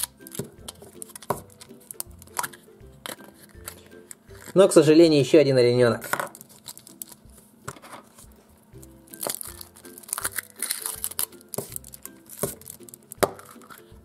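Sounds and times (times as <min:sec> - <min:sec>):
plastic capsule pried open: 0:00.0 - 0:04.6, 0:09.1 - 0:13.8
soft background music: 0:00.0 - 0:14.0
foil crinkling and rustling: 0:06.3 - 0:07.3, 0:09.1 - 0:13.8.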